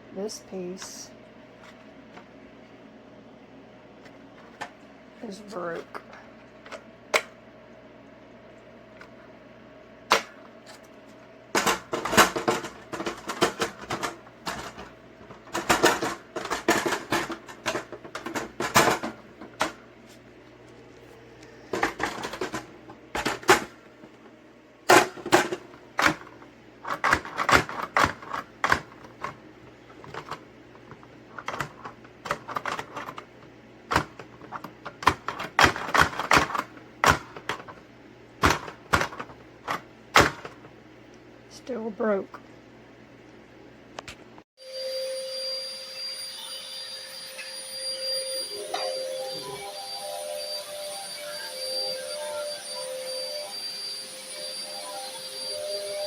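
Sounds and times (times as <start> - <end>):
plastic parts clicking and rattling: 26.8 - 33.3.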